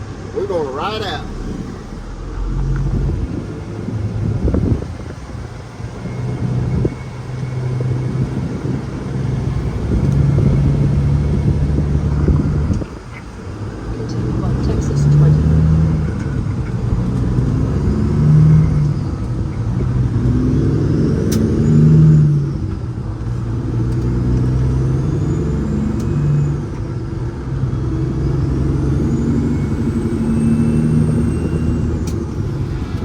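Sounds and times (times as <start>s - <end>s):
truck diesel engine accelerating: 0.0s - 33.0s
faint high whistle: 29.2s - 32.1s.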